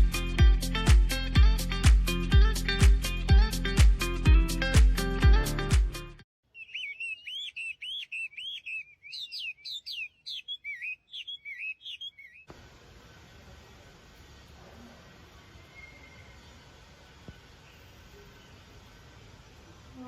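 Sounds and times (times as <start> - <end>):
music with a beat: 0.0 - 6.2
bird chirping: 6.4 - 12.5, 15.4 - 16.6
faint hiss of room tone: 12.5 - 20.0.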